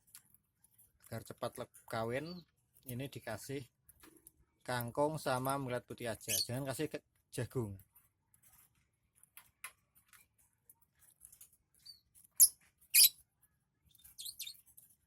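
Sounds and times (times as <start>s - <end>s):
high squeaky bird chirps: 6.2s - 6.6s, 11.8s - 13.2s, 13.9s - 14.7s.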